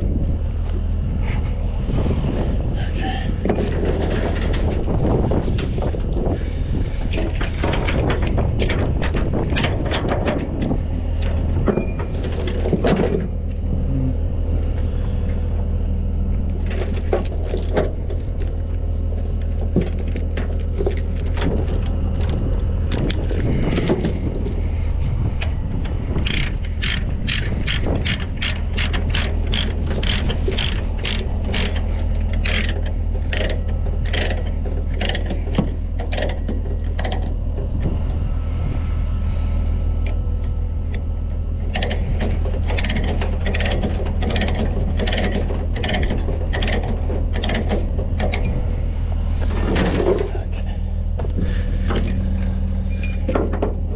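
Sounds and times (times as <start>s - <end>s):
diesel truck engine idling: 0.0s - 9.6s, 10.4s - 53.9s
ratchet binder pawl clicking: 26.2s - 37.4s.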